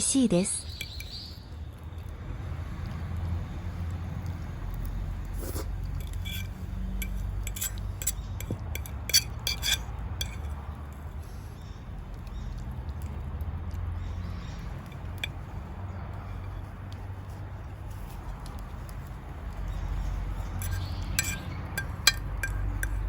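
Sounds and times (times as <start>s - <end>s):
cutlery clinking on dish: 6.0s - 10.5s, 20.6s - 23.0s.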